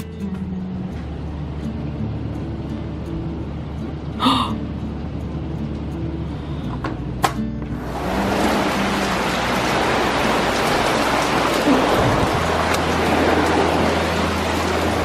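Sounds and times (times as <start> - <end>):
heavy rain: 7.8 - 15.0.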